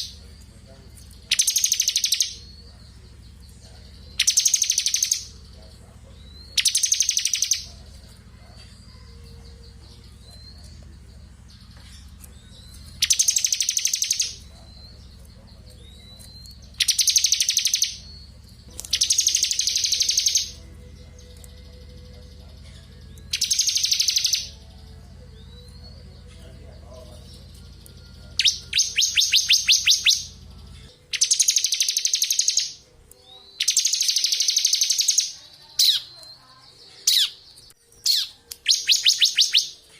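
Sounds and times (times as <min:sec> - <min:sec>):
bird buzzing trills: 0:00.0 - 0:26.2.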